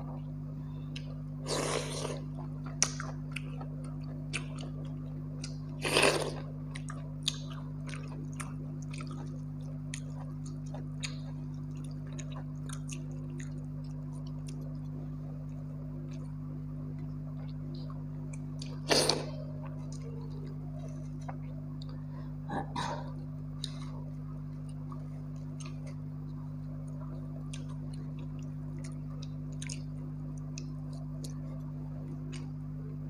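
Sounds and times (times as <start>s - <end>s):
steady low hum: 0.0s - 33.0s
wet chewing: 26.8s - 32.6s.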